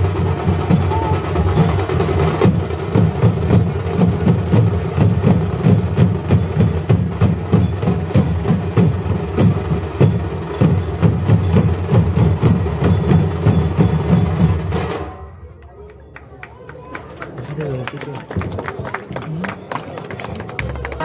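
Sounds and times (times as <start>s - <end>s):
drums playing fast beat: 0.0s - 15.2s.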